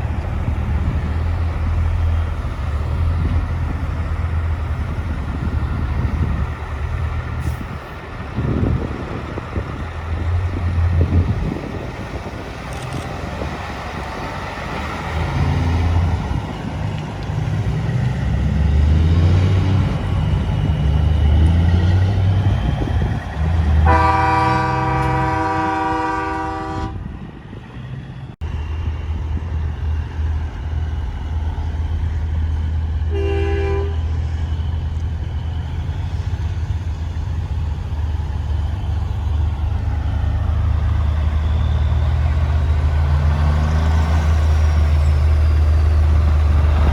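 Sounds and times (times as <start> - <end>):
truck engines rumbling: 0.0 - 46.9
truck air horn: 23.8 - 27.1, 33.1 - 34.2.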